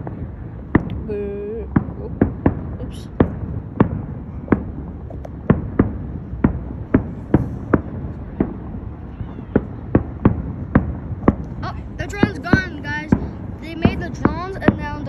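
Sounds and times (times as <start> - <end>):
fireworks bursting: 0.0 - 15.0
low rumble: 0.0 - 15.0.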